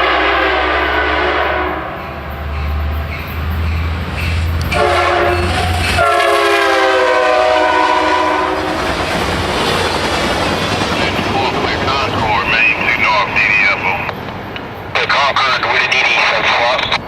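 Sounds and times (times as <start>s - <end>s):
train air horn blasts: 0.0s - 2.2s, 4.6s - 8.8s
diesel locomotive rumble: 0.0s - 17.0s
train cars clacking over rail joints: 2.4s - 6.4s, 8.6s - 13.4s.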